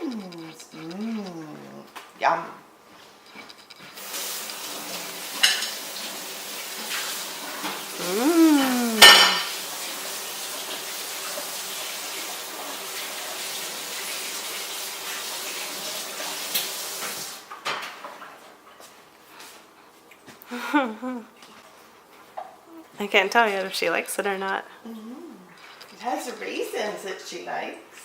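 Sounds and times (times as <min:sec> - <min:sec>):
dishes and cutlery clattering: 0:05.4 - 0:05.8, 0:09.0 - 0:09.5.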